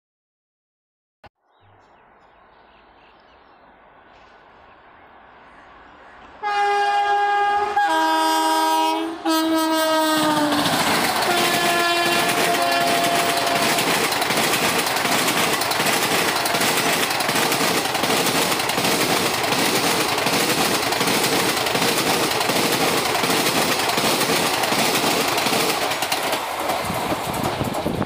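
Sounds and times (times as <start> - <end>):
train wheels clattering over joints: 10.5 - 28.0.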